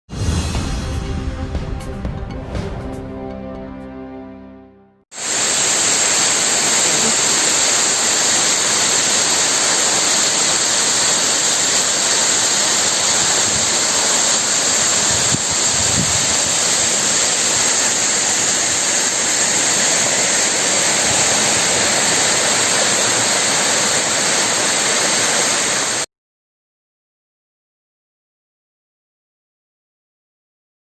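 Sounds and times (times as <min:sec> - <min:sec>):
loud waterfall rushing: 0:05.1 - 0:26.1.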